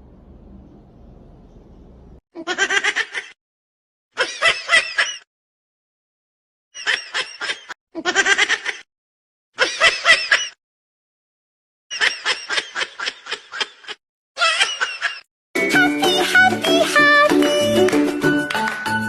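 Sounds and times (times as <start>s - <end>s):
rapid pulsed laughter: 6.8s - 8.9s.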